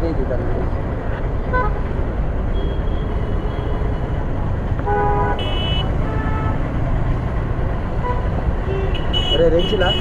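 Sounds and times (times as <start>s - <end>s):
road and wind noise: 0.0s - 10.0s
vehicle horns honking: 4.8s - 6.7s, 8.0s - 10.0s.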